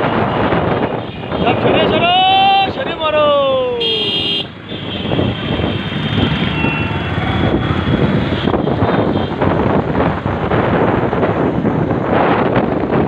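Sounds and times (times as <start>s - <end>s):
wind buffeting microphone: 0.0s - 13.0s
motorcycle engine drone: 3.8s - 13.0s.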